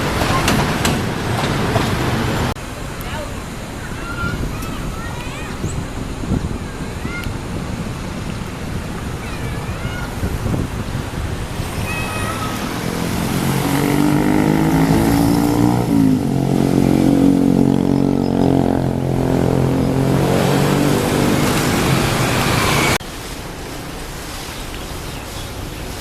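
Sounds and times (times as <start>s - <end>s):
diesel train engine passing: 0.0s - 4.0s, 11.3s - 23.0s.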